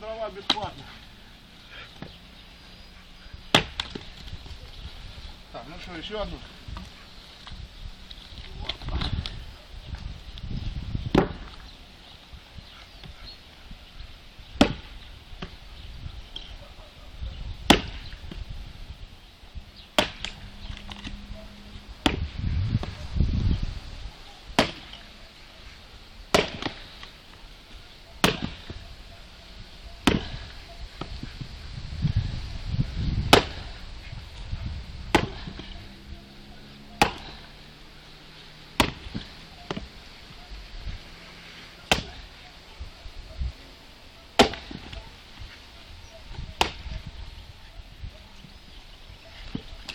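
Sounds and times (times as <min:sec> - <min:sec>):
axe chopping firewood: 0:00.2 - 0:01.0, 0:01.7 - 0:02.2, 0:03.5 - 0:04.6, 0:08.2 - 0:09.4, 0:11.0 - 0:11.7, 0:14.4 - 0:15.7, 0:16.3 - 0:16.6, 0:17.6 - 0:18.5, 0:19.8 - 0:21.2, 0:21.9 - 0:23.0, 0:24.4 - 0:25.2, 0:26.3 - 0:28.8, 0:30.0 - 0:31.5, 0:33.1 - 0:34.0, 0:34.9 - 0:40.4, 0:41.4 - 0:42.5, 0:44.3 - 0:45.5, 0:46.3 - 0:47.1, 0:49.4 - 0:49.9
low rumble: 0:18.5 - 0:24.2.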